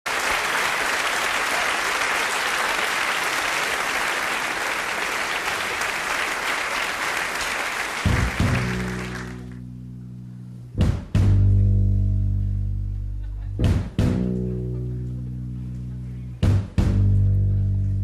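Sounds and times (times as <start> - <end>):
audience applauding: 0.1 - 9.6
band playing low ringing notes: 8.1 - 18.0.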